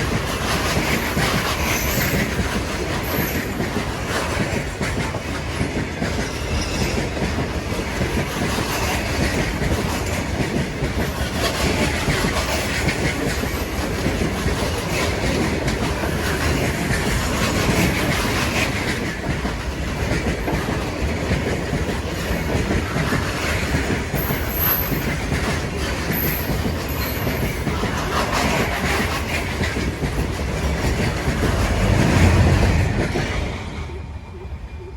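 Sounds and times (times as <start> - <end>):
train wheels clattering on track: 0.0 - 34.9
high wheel squeals: 6.2 - 7.2.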